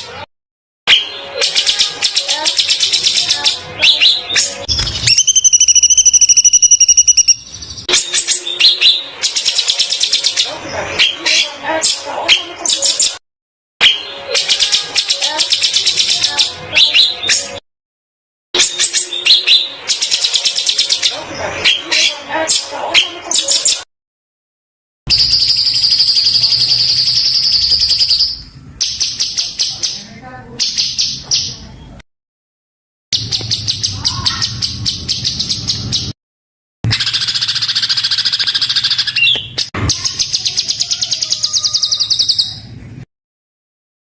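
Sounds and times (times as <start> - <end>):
songbird singing harsh rapid notes: 0.9 - 13.2, 25.1 - 31.7, 36.9 - 42.6.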